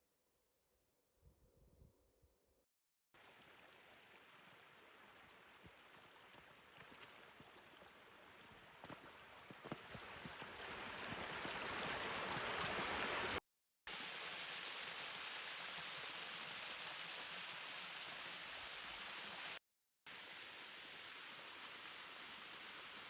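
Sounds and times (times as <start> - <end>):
stream rushing: 3.2 - 13.4.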